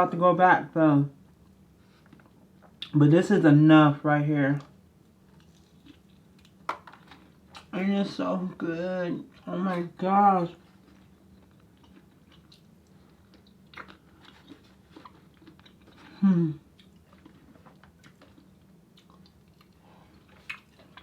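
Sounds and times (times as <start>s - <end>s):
person chewing: 5.3s - 7.8s, 10.6s - 21.0s
person humming: 16.1s - 16.6s.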